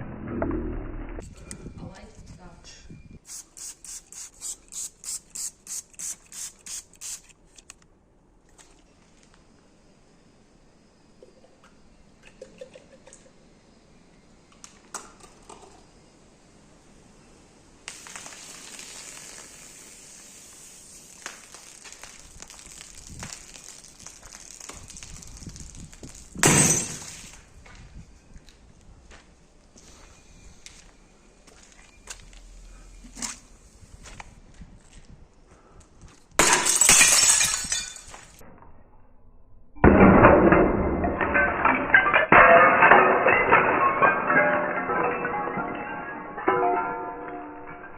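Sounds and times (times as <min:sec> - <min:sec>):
soft drink fizzing: 0:17.9 - 0:26.2
glass bottle shattering: 0:21.0 - 0:27.4, 0:36.4 - 0:38.4, 0:39.8 - 0:47.9
glass pieces clinking: 0:26.0 - 0:27.4, 0:36.4 - 0:38.4, 0:41.1 - 0:47.9.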